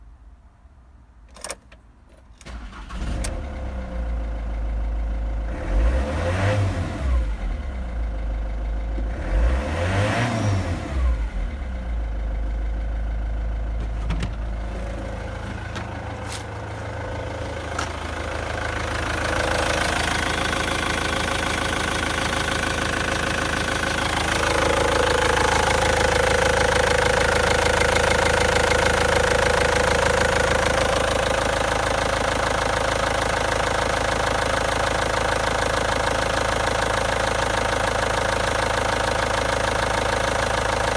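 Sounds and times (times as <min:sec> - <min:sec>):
diesel engine starting and idling: 0:02.4 - 0:40.9
engine revving: 0:05.5 - 0:07.9, 0:09.1 - 0:11.8, 0:14.6 - 0:28.7.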